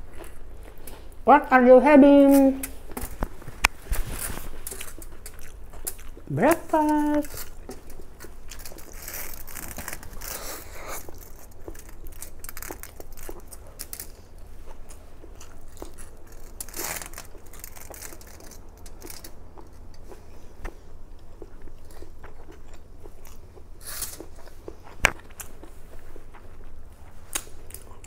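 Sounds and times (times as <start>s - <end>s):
person chewing and lip-smacking: 2.4s - 28.0s
breathy mouth noises: 10.0s - 11.8s.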